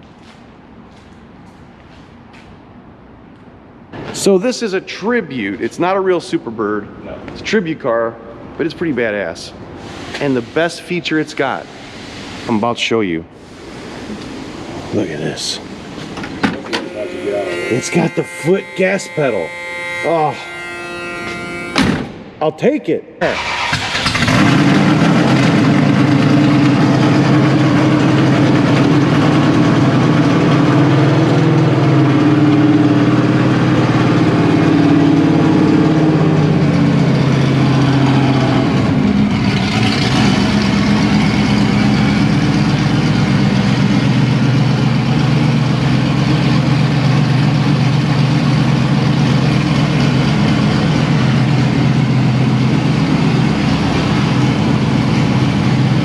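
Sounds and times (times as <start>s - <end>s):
car engine idling: 23.4s - 56.0s.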